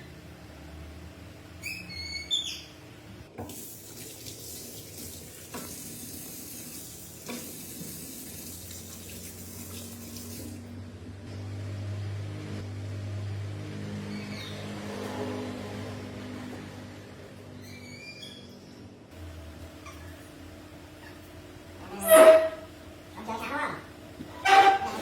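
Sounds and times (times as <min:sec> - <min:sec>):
tap water running into sink: 0:03.4 - 0:10.6.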